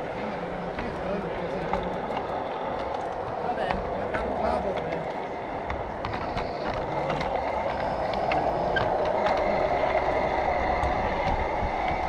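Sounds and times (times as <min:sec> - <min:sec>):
faint whine: 0:00.0 - 0:12.0
model train rolling hum: 0:00.0 - 0:12.0
wheels clicking on rails: 0:00.0 - 0:12.0.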